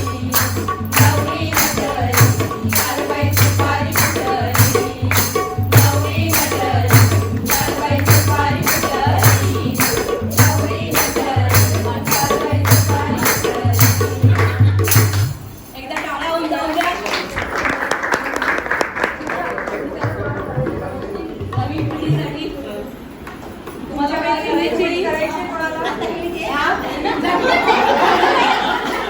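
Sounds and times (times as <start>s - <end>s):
women singing folk song: 0.0s - 15.2s.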